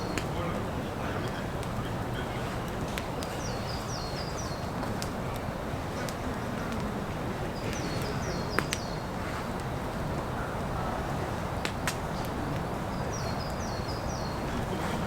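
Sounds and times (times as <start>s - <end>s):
steady rain hiss: 0.0s - 15.0s
songbird singing: 3.0s - 4.7s, 7.6s - 9.1s, 12.6s - 14.6s.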